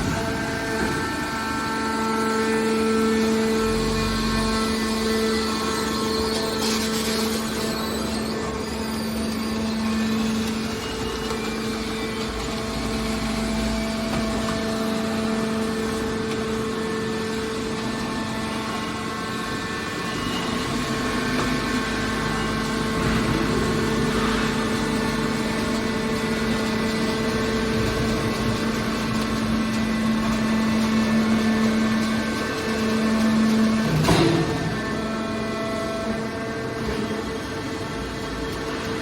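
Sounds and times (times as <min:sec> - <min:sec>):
hydraulic baler humming: 0:00.0 - 0:39.0.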